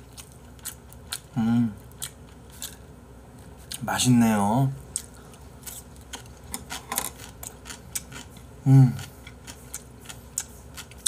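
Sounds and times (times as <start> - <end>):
person chewing food: 0.0 - 3.9, 4.8 - 11.0
person humming: 8.6 - 9.1.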